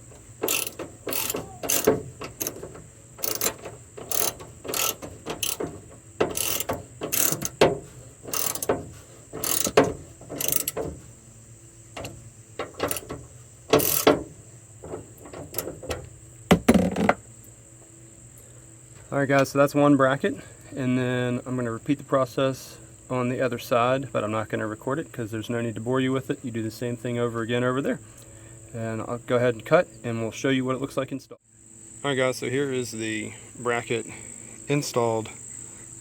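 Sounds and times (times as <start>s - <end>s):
socket ratchet clicking: 0.1s - 10.9s, 12.0s - 14.3s.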